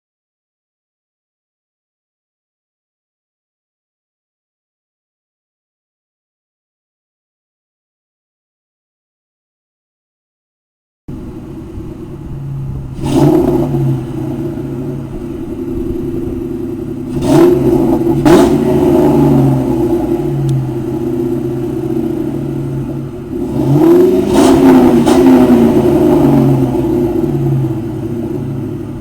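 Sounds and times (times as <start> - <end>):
car engine idling and revving: 11.1 - 29.0.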